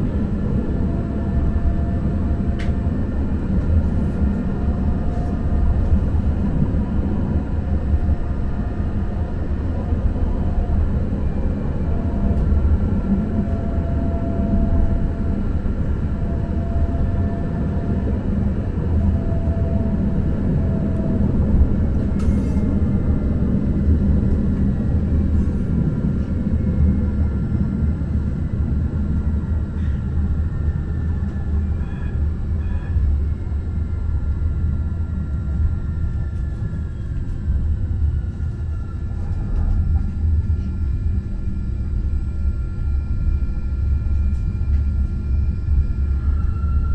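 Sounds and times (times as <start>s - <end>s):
faint whining tone: 10.9s - 46.9s.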